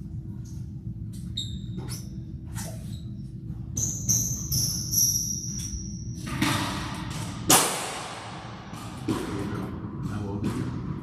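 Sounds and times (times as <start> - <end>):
squash ball struck with racket: 6.3 - 11.0.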